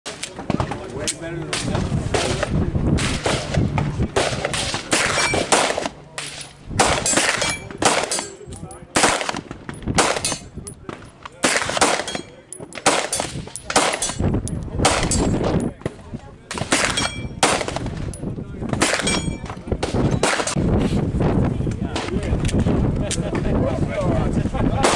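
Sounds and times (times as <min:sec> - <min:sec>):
gunshots: 0:01.5 - 0:14.2, 0:14.8 - 0:15.5, 0:16.5 - 0:18.1, 0:18.7 - 0:20.6.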